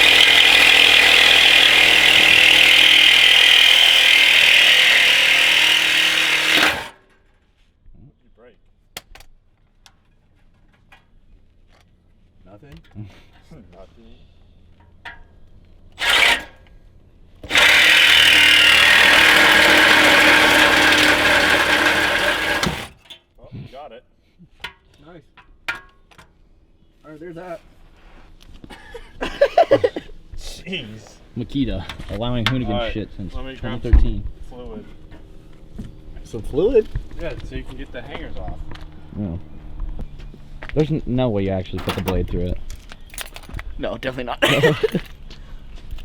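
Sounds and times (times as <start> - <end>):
reciprocating saw cutting steel pipe: 0.0 - 7.0, 16.0 - 16.6, 17.4 - 23.1.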